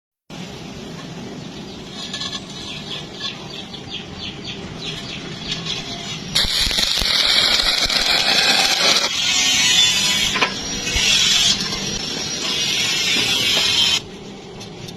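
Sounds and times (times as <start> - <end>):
low hum: 0.3 - 14.9
light rhythmic scratching: 0.9 - 14.9
welding arc crackling hiss: 4.7 - 14.2.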